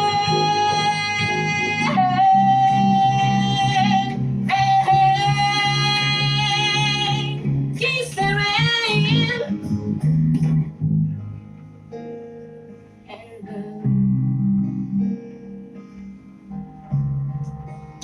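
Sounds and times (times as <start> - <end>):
woman singing long notes: 0.0 - 9.5, 13.1 - 13.9
guitar playing: 0.0 - 18.0.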